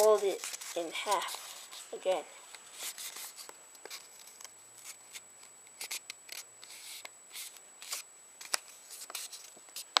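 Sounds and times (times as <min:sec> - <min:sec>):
paper crackle: 0:00.0 - 0:01.9
paper rustling as it is folded: 0:00.0 - 0:05.2, 0:05.8 - 0:10.0.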